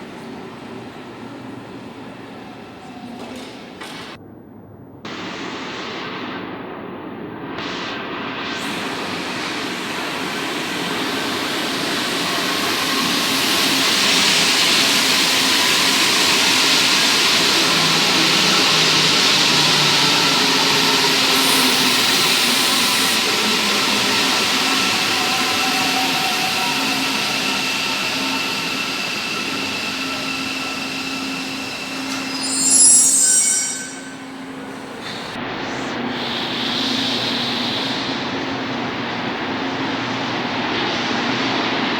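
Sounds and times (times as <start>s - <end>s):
metro train running: 0.0s - 5.1s, 6.7s - 41.9s
loud high-pitched squeal: 8.4s - 38.3s.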